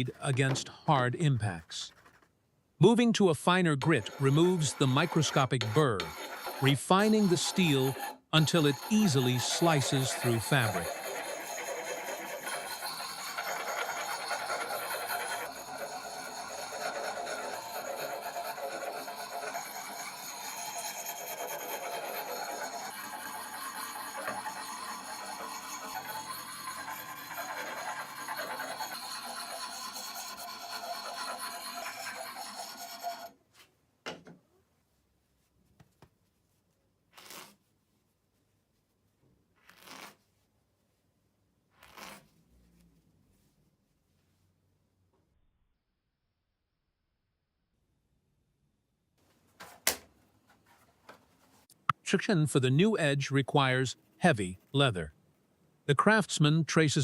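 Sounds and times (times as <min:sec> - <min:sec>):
axe scraping on sharpening stone: 0:03.8 - 0:33.3.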